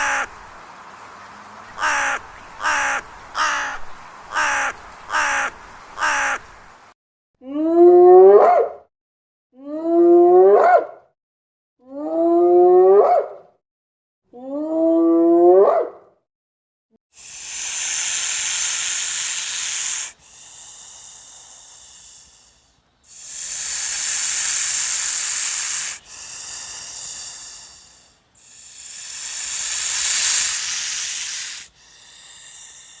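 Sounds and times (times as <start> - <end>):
long loud hisses: 17.2 - 33.0.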